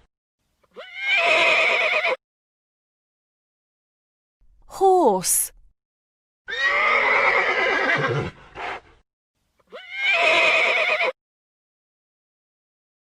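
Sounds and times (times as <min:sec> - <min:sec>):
horse whinnying: 0:00.7 - 0:02.2, 0:06.5 - 0:08.8, 0:09.7 - 0:11.2.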